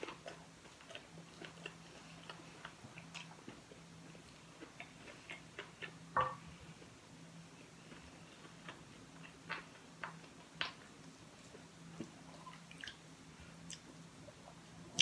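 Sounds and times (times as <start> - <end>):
person chewing food: 0.0 - 6.9.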